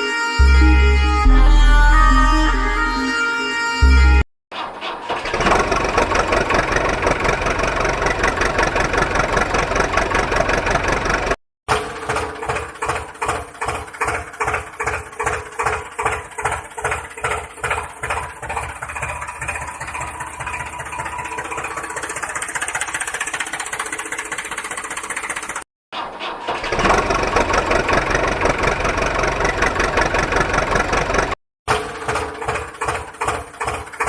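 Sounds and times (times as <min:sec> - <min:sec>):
busy engine sound: 0:05.2 - 0:25.6, 0:26.6 - 0:31.4
engine chugging slowly: 0:05.3 - 0:25.6, 0:26.8 - 0:34.0.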